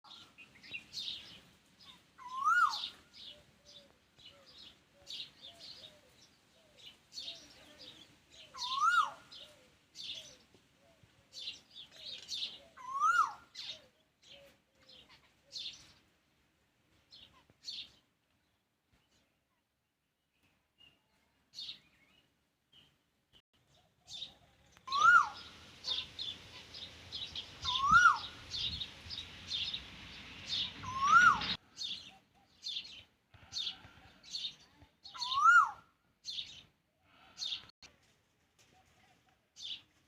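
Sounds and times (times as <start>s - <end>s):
birds chirping and twittering: 0.1s - 16.1s, 17.0s - 19.4s, 23.6s - 37.8s, 39.6s - 40.0s
rising and falling bird call: 2.2s - 4.0s, 8.5s - 10.4s, 12.0s - 13.9s, 24.1s - 33.0s, 35.1s - 35.8s.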